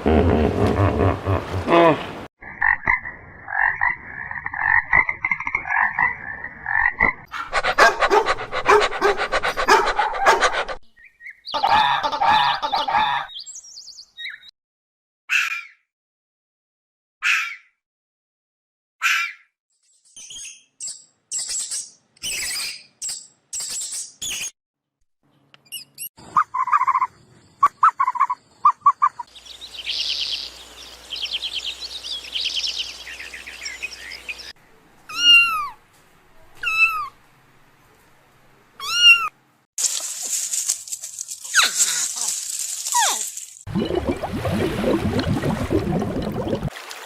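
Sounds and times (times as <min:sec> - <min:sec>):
animal chirps: 0:25.7 - 0:34.5, 0:36.6 - 0:37.2.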